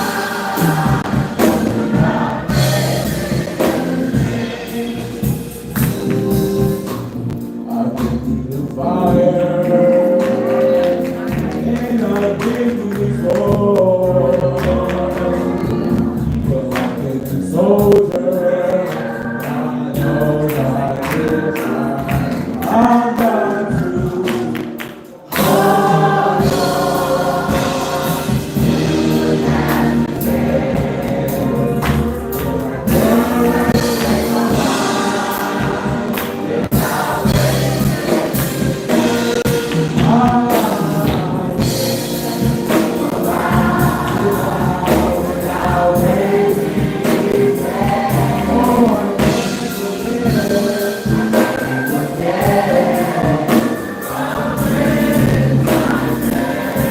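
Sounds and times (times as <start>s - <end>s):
gospel choir singing: 0.0s - 56.9s.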